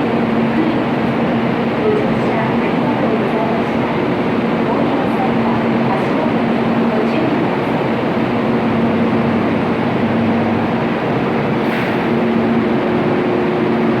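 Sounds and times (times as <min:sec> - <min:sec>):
train rumble: 0:00.0 - 0:14.0
higher hum: 0:05.8 - 0:14.0.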